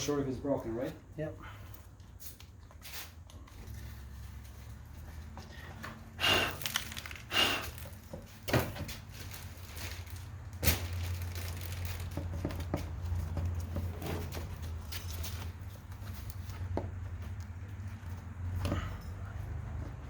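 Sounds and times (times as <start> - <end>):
scraping crinkling bursts: 0.8 - 18.6.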